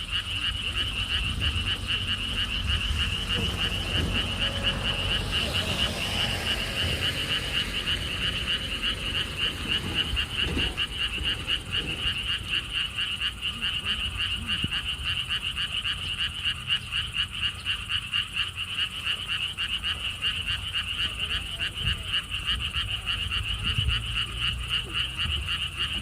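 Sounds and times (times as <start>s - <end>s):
chorus of frogs trilling: 0.0s - 26.0s.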